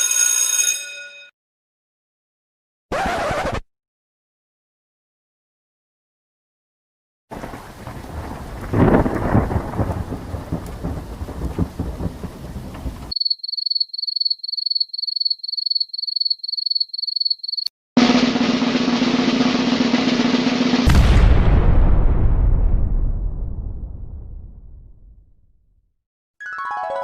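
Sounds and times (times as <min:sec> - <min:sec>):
rain: 0:07.3 - 0:13.1
thunder rumble: 0:07.3 - 0:13.2, 0:18.0 - 0:25.3.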